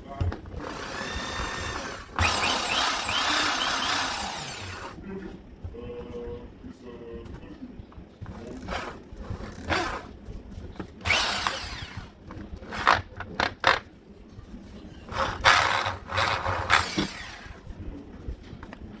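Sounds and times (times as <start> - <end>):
impact drill bursts: 0.6 - 5.0, 11.1 - 12.1, 15.2 - 17.6.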